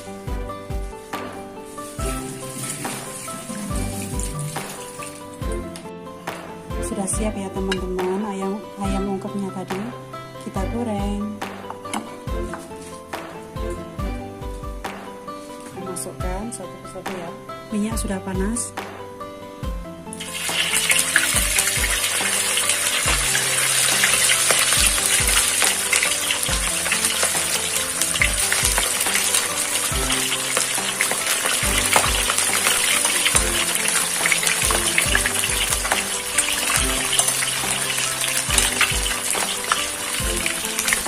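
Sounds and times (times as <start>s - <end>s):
background music with bass beat: 0.0s - 7.4s, 18.4s - 22.2s, 23.1s - 25.6s, 26.4s - 29.3s, 29.9s - 32.7s, 33.3s - 41.0s
chicken sizzling in hot oil: 1.0s - 5.6s, 20.2s - 41.0s.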